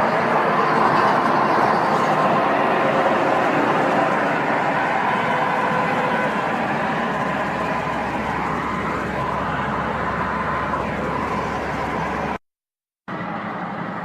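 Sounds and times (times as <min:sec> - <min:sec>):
vehicle driving on highway: 0:00.0 - 0:12.4, 0:13.0 - 0:14.0.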